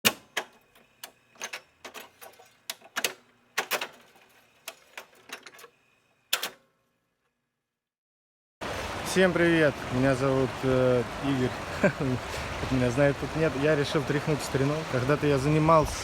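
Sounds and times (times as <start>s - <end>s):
sharp clicks and knocks: 0.0s - 5.7s.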